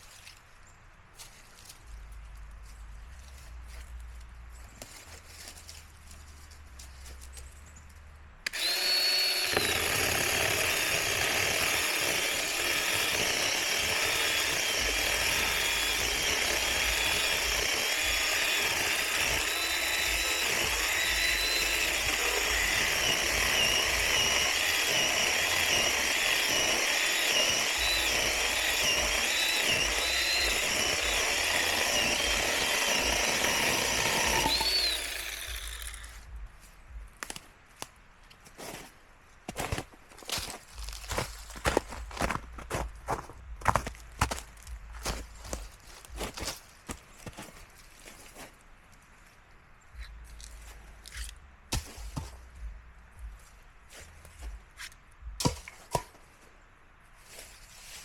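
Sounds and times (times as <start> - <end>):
electric chainsaw cutting wood: 8.5 - 36.2.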